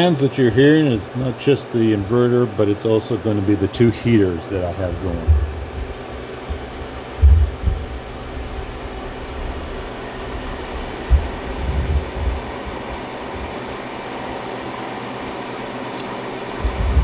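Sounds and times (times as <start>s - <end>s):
cooling fans whirring: 0.0s - 17.0s
faint steady hum: 0.0s - 17.0s
low thumps: 4.8s - 13.6s, 16.6s - 17.0s.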